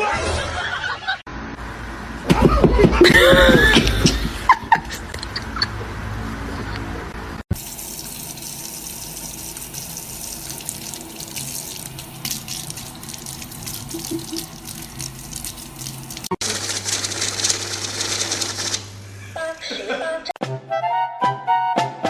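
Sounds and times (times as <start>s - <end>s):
tap water running: 7.5s - 18.8s.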